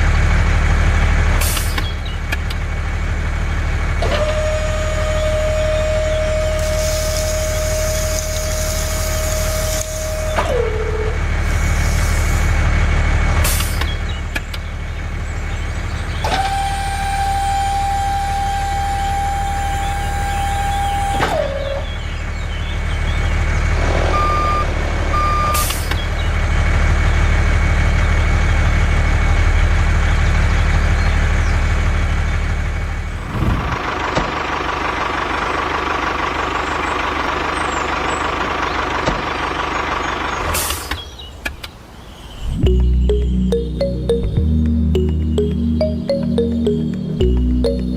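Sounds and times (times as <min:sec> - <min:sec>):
small vehicle engine hum: 0:00.0 - 0:47.9
whining tone dropping in pitch: 0:16.1 - 0:21.6, 0:42.5 - 0:47.9.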